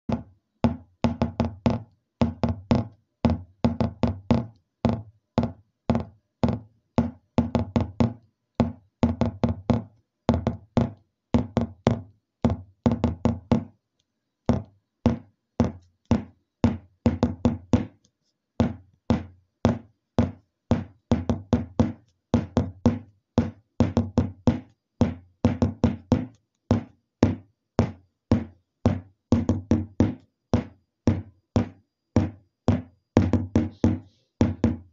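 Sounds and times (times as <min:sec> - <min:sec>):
rapid sharp knocks with low ring: 0:00.1 - 0:13.7, 0:14.5 - 0:34.9.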